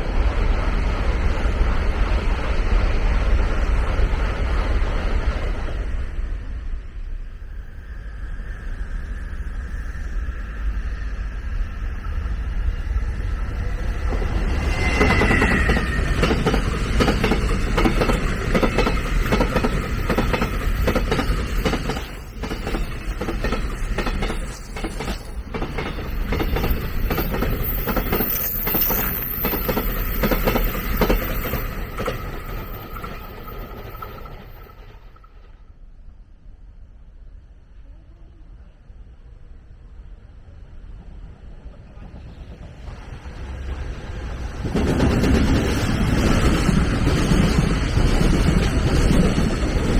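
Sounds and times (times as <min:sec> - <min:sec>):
train rumbling: 0:00.0 - 0:49.9
wheels clacking over rail joints: 0:14.0 - 0:35.4.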